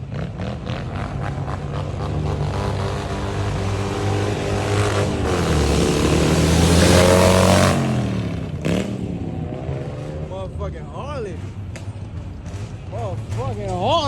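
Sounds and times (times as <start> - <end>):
car engine revving hard: 0.0 - 10.3.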